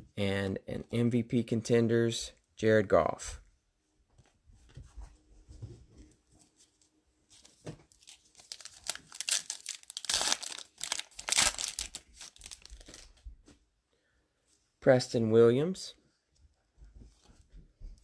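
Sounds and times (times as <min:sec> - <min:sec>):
plastic wrapper tearing and crinkling: 0:07.9 - 0:13.2.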